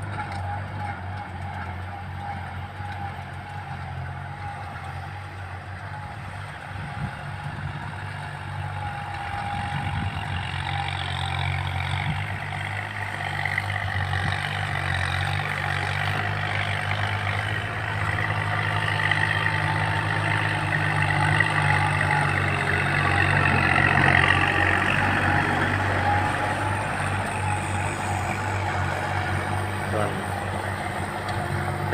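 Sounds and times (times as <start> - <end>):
tractor engine under load: 0.0 - 31.9.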